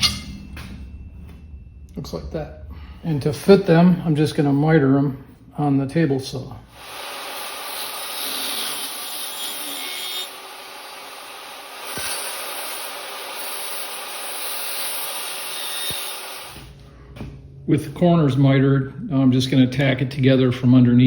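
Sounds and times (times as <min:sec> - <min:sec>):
table saw cutting sheet metal: 0:06.7 - 0:16.7.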